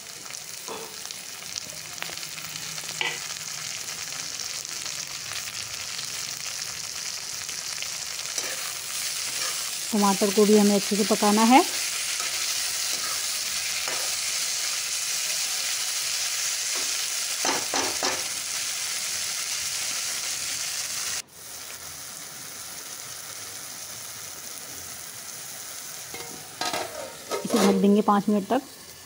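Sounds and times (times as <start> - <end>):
vegetables sizzling in hot oil: 0.0 - 29.0
steel spatula scraping pan: 8.4 - 9.8, 11.8 - 14.3, 26.2 - 28.0.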